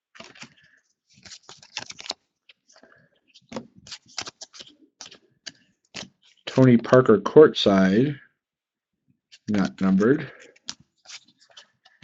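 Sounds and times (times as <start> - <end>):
trading cards being flipped: 0.2 - 6.4, 9.3 - 12.0.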